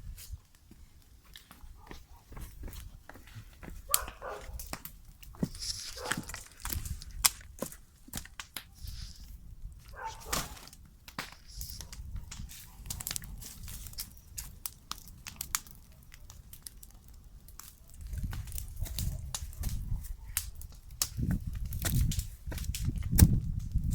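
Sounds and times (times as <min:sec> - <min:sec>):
paper and cardboard crinkling: 0:03.2 - 0:09.3, 0:09.9 - 0:14.5.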